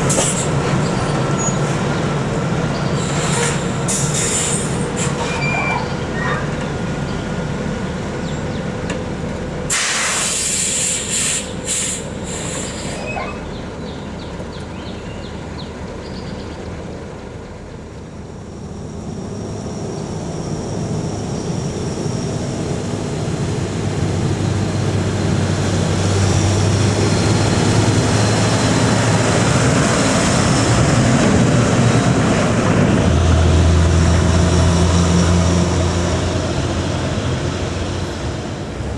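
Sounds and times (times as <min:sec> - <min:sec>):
diesel truck engine: 0:00.0 - 0:38.9
air brake hisses: 0:03.0 - 0:05.3, 0:09.7 - 0:13.1
high brake squeal: 0:03.0 - 0:06.5, 0:09.7 - 0:13.6.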